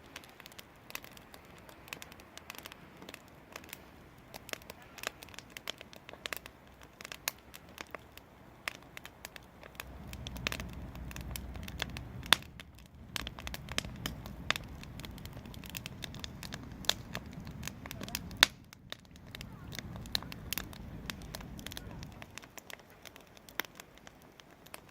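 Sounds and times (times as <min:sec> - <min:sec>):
wood fire crackling: 0:00.0 - 0:24.9
low rumble: 0:09.7 - 0:22.4.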